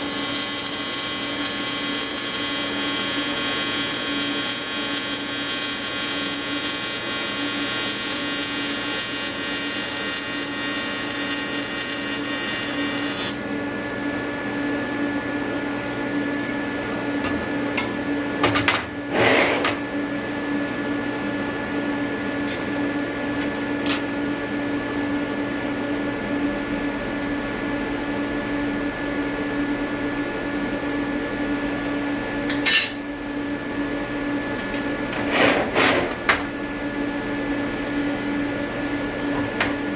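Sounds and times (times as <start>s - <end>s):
welding arc buzzing: 0.0s - 13.4s, 32.5s - 33.1s.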